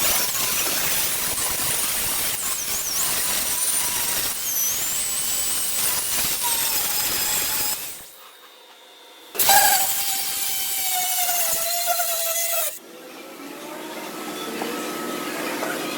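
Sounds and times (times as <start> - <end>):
power tool rasping with high whine: 0.0 - 8.2, 9.4 - 12.8.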